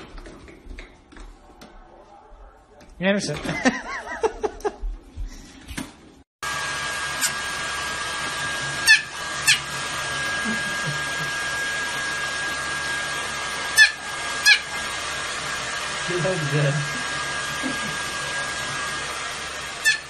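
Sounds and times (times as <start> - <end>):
hair dryer blowing: 6.4 - 20.0
puppy yipping: 8.9 - 9.7, 13.8 - 14.7.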